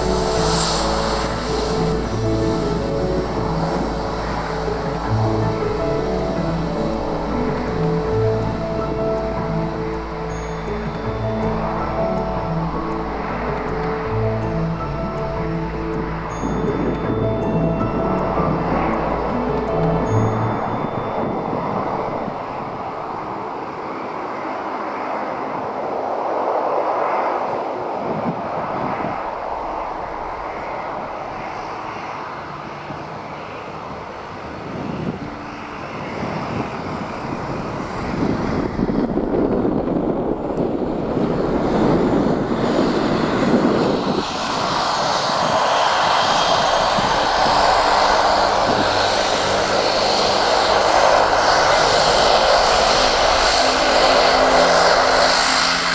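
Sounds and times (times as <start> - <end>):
jet engines at taxi power: 0.0 - 55.9
wind noise on microphone: 0.0 - 55.9
turboprop plane taxiing: 30.2 - 55.9.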